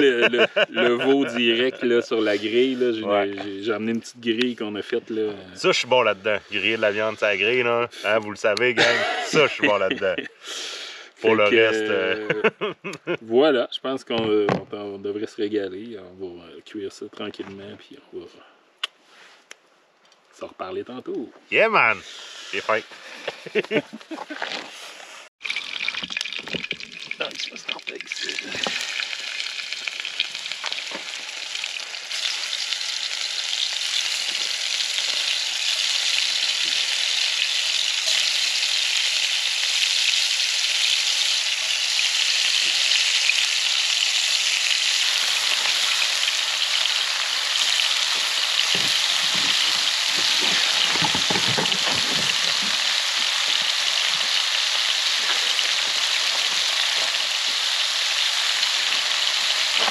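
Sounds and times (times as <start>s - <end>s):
mushrooms sizzling in pan: 27.0s - 59.9s
pan knocks: 50.4s - 52.8s.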